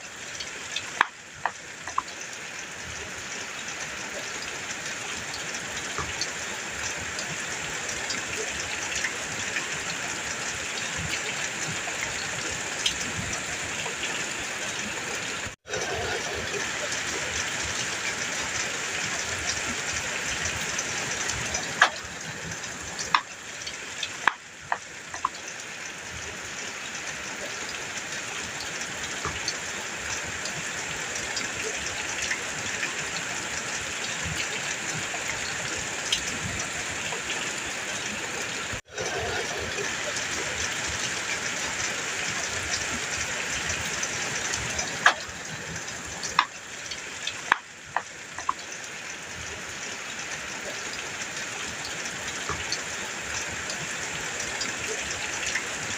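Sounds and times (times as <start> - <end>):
heavy rain on metal roof: 0.0 - 55.9
sharp drip impacts: 19.1 - 26.2, 42.3 - 49.5.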